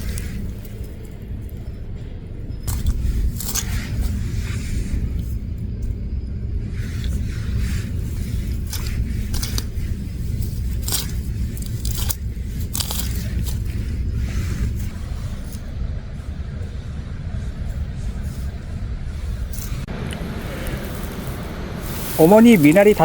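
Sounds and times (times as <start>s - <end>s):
low rumble: 0.0s - 23.0s
plant stems rustling and snapping: 2.6s - 4.2s, 6.9s - 14.9s.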